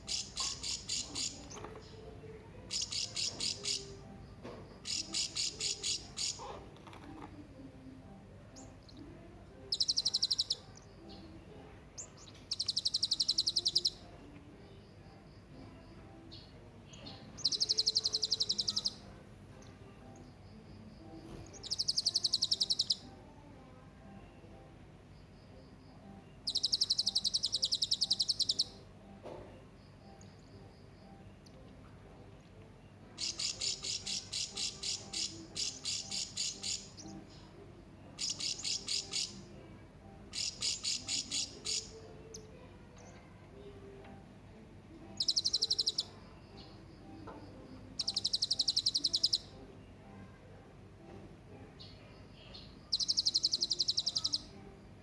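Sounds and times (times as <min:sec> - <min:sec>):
parrot chirping rapidly: 0:00.0 - 0:01.4, 0:02.7 - 0:04.0, 0:04.8 - 0:06.6, 0:09.7 - 0:10.7, 0:12.2 - 0:14.0, 0:17.4 - 0:19.0, 0:21.6 - 0:23.0, 0:26.5 - 0:28.8, 0:33.2 - 0:37.1, 0:38.2 - 0:39.4, 0:40.3 - 0:42.0, 0:45.2 - 0:46.1, 0:48.0 - 0:49.5, 0:52.9 - 0:54.5.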